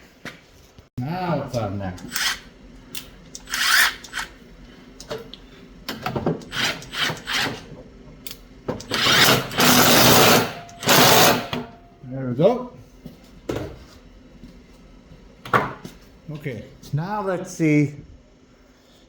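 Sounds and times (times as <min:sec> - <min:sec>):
power tool running: 0:02.0 - 0:04.4, 0:06.4 - 0:07.6, 0:08.8 - 0:11.8.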